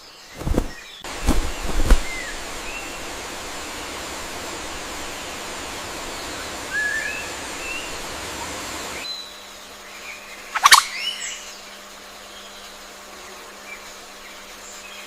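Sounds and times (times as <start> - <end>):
nature ambience hiss: 0.0 - 15.0
short bird chirps: 10.5 - 11.1.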